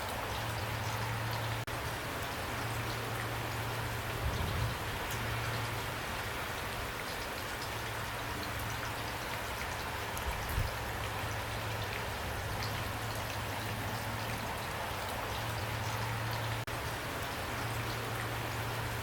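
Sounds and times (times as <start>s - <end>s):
rain pattering: 0.0s - 19.0s.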